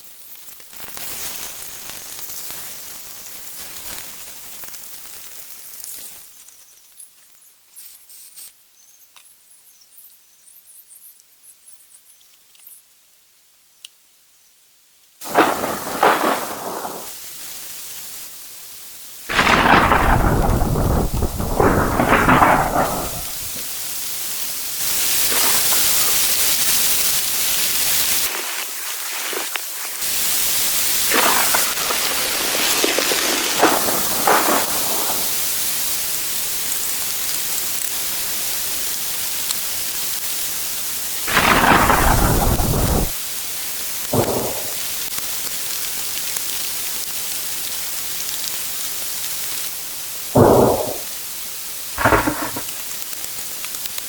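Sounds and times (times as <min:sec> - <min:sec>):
hissing rain: 0:00.0 - 0:06.4, 0:15.1 - 0:54.0
thunder rumbles: 0:15.2 - 0:17.6, 0:19.3 - 0:23.8, 0:31.0 - 0:36.1, 0:41.3 - 0:43.2, 0:44.1 - 0:45.1, 0:50.4 - 0:51.2, 0:52.0 - 0:52.7.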